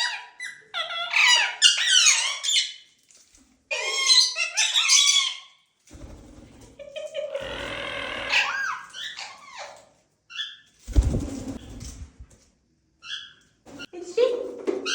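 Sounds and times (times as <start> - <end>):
parrot screeching: 0.0 - 2.8, 3.7 - 5.6, 7.3 - 10.7.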